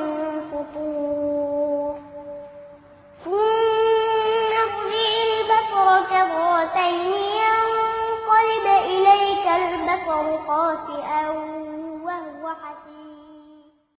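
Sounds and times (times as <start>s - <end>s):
high voice chanting recitation: 0.0s - 13.9s.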